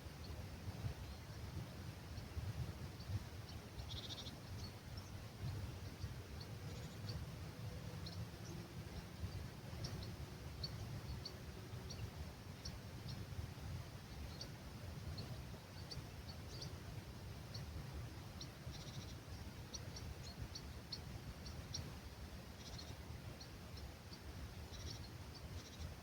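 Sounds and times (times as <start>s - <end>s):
light breeze rumble: 0.0s - 26.0s
small birds chirping: 0.0s - 26.0s.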